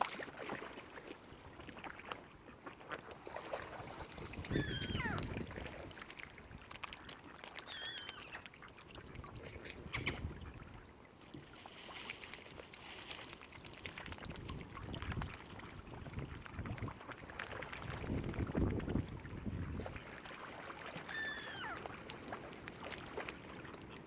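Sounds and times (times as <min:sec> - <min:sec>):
water lapping: 0:00.0 - 0:24.0
warbling bird calls: 0:04.5 - 0:05.4, 0:07.6 - 0:08.5, 0:09.8 - 0:10.4, 0:21.1 - 0:21.9.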